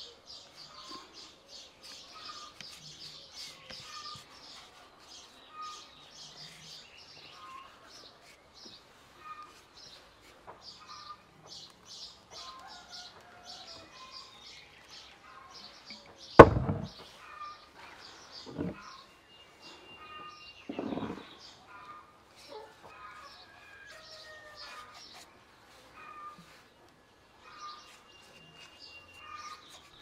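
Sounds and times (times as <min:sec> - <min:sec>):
small birds chirping: 0:00.0 - 0:30.0
glass jar thumping on wooden table: 0:16.4 - 0:17.0
soft knock: 0:16.4 - 0:17.0.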